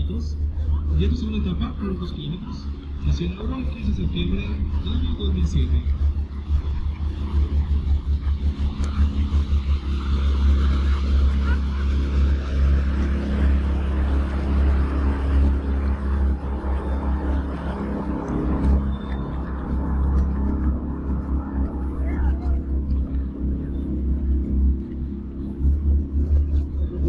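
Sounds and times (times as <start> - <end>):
boat motor rumbling: 0.0 - 27.0.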